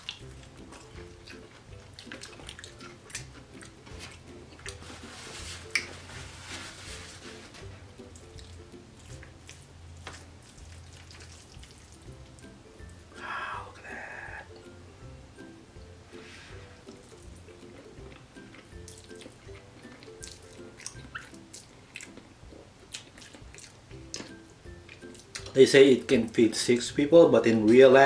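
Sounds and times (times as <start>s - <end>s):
wet chewing and lip smacks: 0.0s - 4.8s, 8.0s - 13.0s, 16.9s - 25.6s
soft background music: 0.0s - 28.0s
paper napkin rustle: 3.8s - 7.9s, 16.2s - 16.7s.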